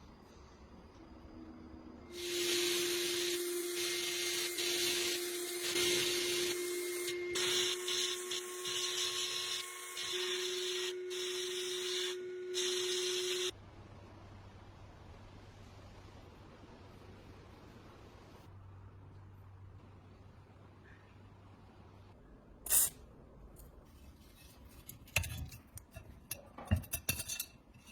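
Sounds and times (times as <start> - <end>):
pressurised spray hissing: 2.2 - 7.1.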